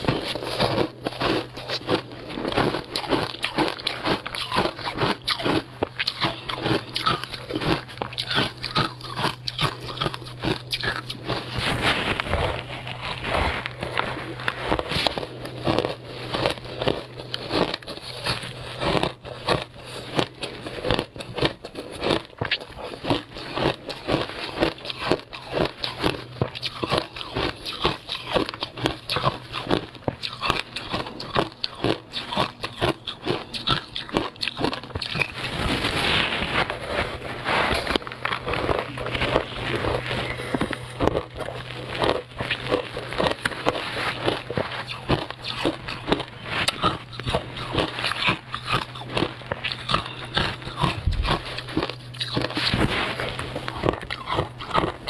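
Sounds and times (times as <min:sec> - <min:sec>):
ice crunching while chewed: 0:00.0 - 0:55.0.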